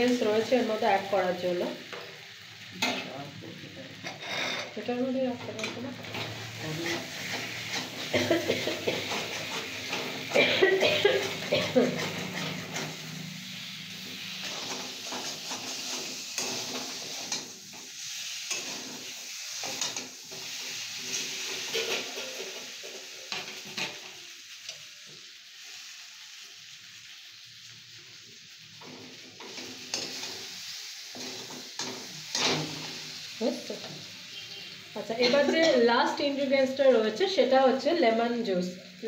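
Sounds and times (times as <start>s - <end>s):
potatoes sizzling in a pan: 0.0s - 39.0s
metal spatula scraping pan: 4.0s - 4.9s, 5.5s - 13.1s.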